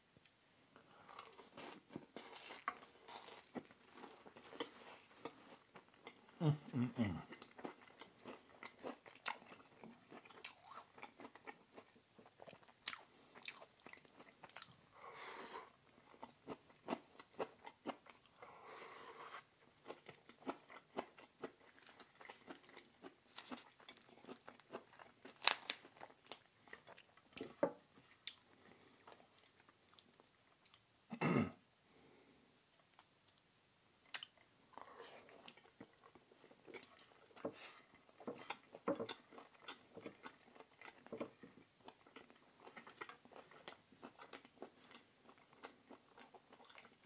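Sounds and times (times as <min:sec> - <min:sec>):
person chewing food: 0:00.9 - 0:30.8, 0:34.0 - 0:47.0.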